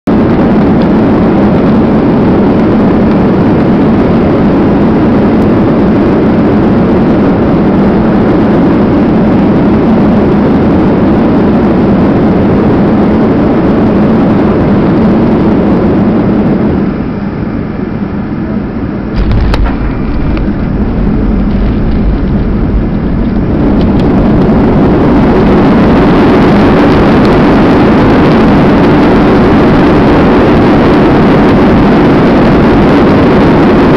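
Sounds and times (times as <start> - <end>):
deep runway rumble: 0.0 - 33.9
jet engine roar in cabin: 0.0 - 33.9
rushing air: 0.1 - 33.9
wheels touching down thump: 19.2 - 24.1.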